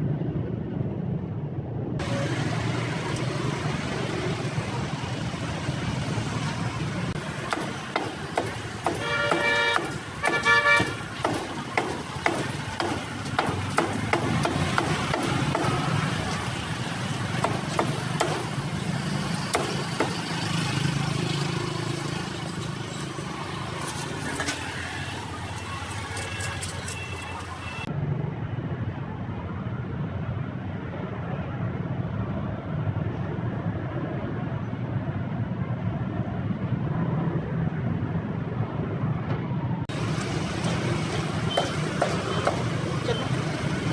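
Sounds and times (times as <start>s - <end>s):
passing vehicles: 0.0s - 43.9s
car horn honking: 8.8s - 11.2s.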